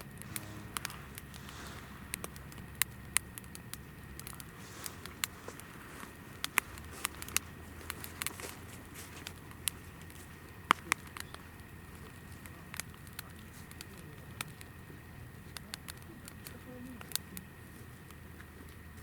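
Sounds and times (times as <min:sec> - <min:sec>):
firewood crackling and popping: 0:00.0 - 0:19.0
low noise of flames: 0:00.0 - 0:19.0.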